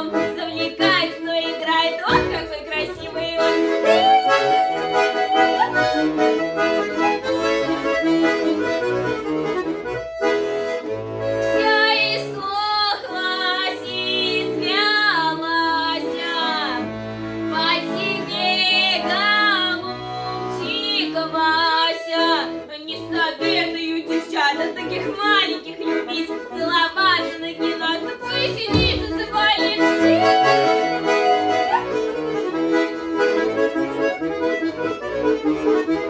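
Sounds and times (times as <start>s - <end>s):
girl singing folk song: 0.0s - 5.9s, 11.4s - 16.8s, 17.5s - 31.9s
accordion playing folk chords: 0.0s - 36.0s.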